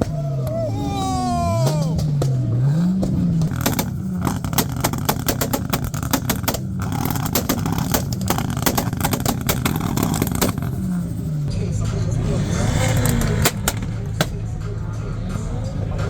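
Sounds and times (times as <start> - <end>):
car engine revving: 0.0 - 16.0
rapid sharp cracks: 1.5 - 11.4, 12.8 - 14.5.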